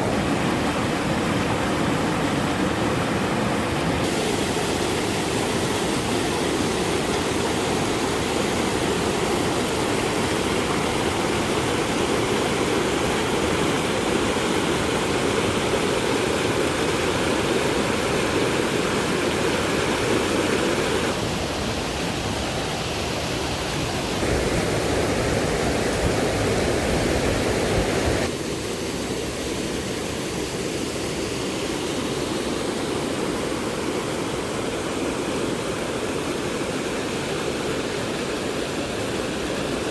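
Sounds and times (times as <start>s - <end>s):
steady rushing noise: 16.3s - 36.5s.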